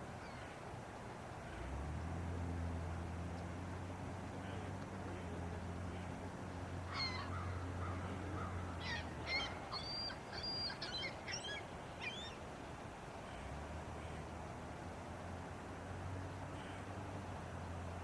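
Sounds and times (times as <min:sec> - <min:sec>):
low steady hum: 0:00.0 - 0:18.0
bird calling: 0:06.9 - 0:12.4.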